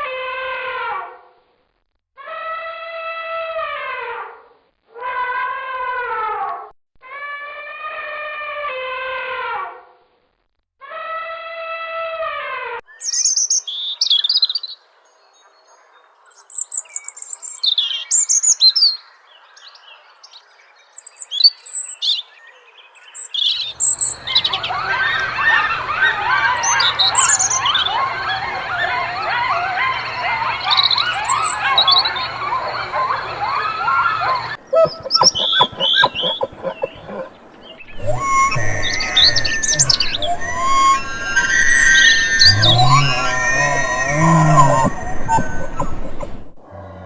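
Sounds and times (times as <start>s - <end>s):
birds chirping: 12.9s - 46.6s.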